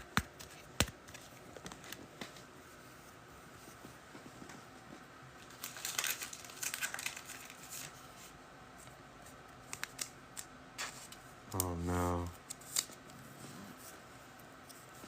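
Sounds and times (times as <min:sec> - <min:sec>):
card packaging crinkling: 0:05.4 - 0:08.0, 0:09.6 - 0:11.8.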